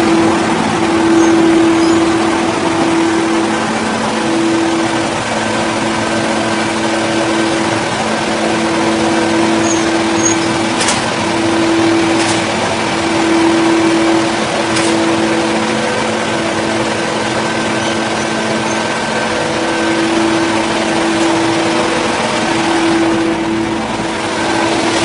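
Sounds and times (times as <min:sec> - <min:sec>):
engine-driven saw cutting: 0:00.0 - 0:25.0.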